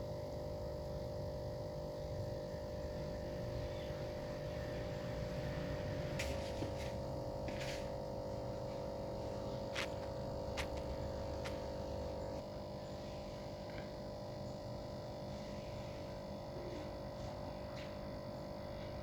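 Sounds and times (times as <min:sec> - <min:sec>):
aquarium pump hum: 0:00.0 - 0:19.0.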